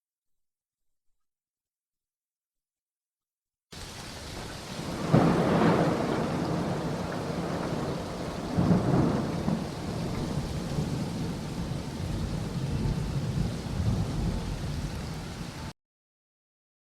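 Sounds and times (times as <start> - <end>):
steady rain: 3.7 - 15.8
thunder rolling: 4.4 - 15.7.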